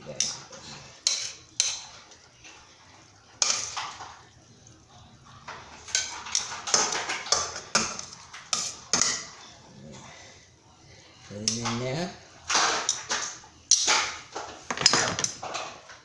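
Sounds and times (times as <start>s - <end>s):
spoon clinking against skillet: 0.1s - 2.6s, 3.4s - 4.8s, 5.5s - 9.4s, 12.5s - 15.4s.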